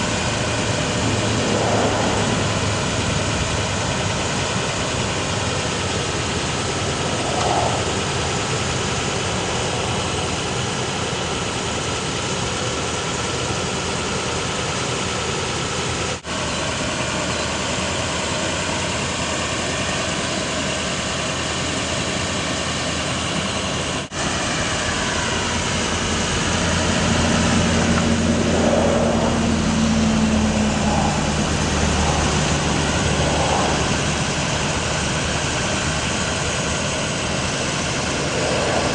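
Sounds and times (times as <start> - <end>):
steady low hum: 0.0 - 14.2, 24.1 - 38.9
truck engine idling: 0.0 - 38.9.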